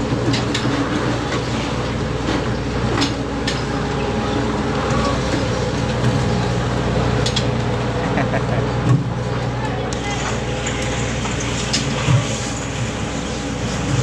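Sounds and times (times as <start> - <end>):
ship engines droning: 0.0 - 14.0.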